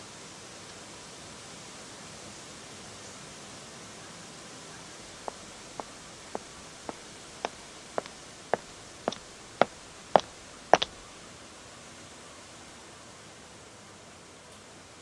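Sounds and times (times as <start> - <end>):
faint steady hiss: 3.9 - 15.0
footsteps on pavement: 5.0 - 11.1.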